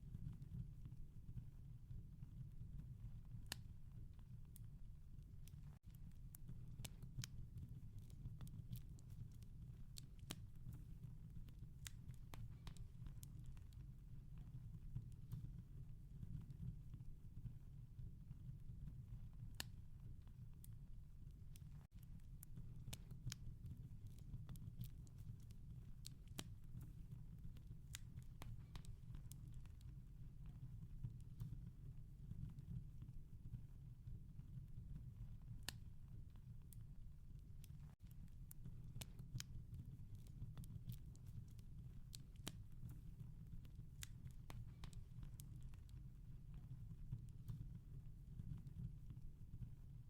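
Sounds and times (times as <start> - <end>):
wood fire crackling and popping: 4.4 - 15.5, 21.4 - 31.7, 37.4 - 47.8.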